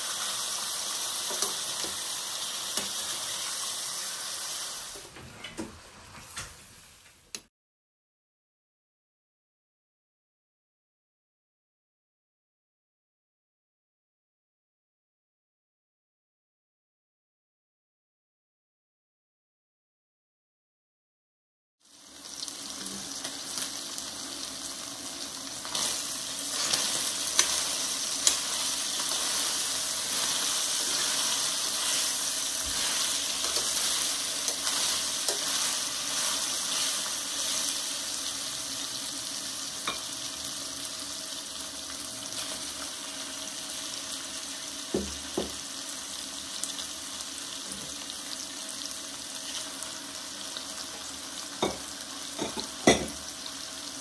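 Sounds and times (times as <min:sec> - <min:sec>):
chicken sizzling in a pot: 0:00.0 - 0:05.2, 0:21.8 - 0:54.0.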